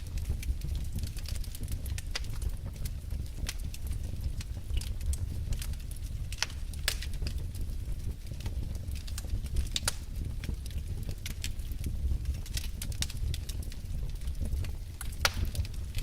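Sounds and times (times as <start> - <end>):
fire crackling and snapping: 0.0 - 16.0
low rumble of fire: 0.0 - 16.0.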